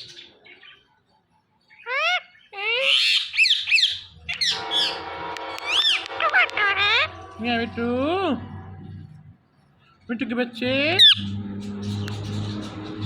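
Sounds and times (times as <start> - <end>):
parrot squawking and chirping: 1.6 - 5.0, 5.6 - 7.3, 10.8 - 13.0
held background music tones: 4.1 - 13.0.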